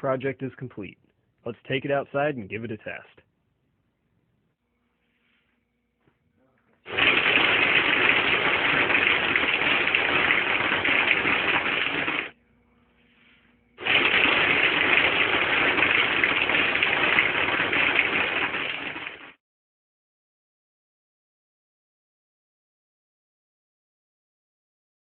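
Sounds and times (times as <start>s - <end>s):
air gun firing pellets: 6.9s - 12.3s, 13.8s - 19.3s.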